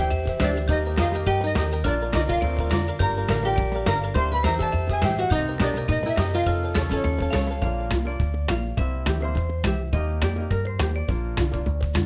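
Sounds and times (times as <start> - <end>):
upbeat music with bass line: 0.0 - 12.0.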